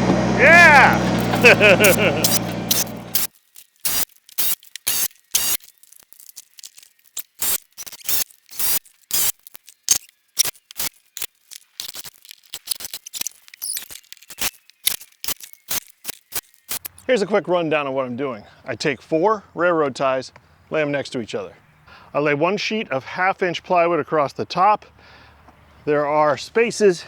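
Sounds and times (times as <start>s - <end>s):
sharp clicks and knocks: 0.9s - 17.0s.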